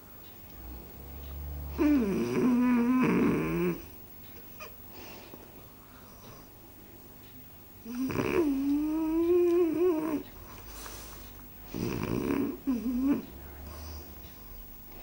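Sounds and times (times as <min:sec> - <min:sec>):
dog snoring: 0:00.5 - 0:04.0, 0:07.8 - 0:15.0.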